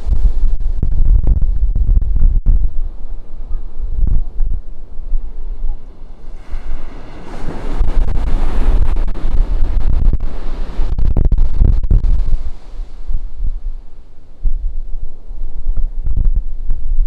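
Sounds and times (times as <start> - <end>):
wind buffeting microphone: 0.0 - 17.0
ocean surf breaking: 4.8 - 15.2.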